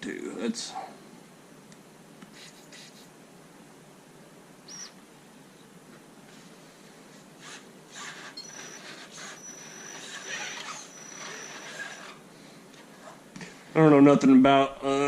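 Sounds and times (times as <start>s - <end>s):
electric motor and gears whining: 7.4s - 12.2s.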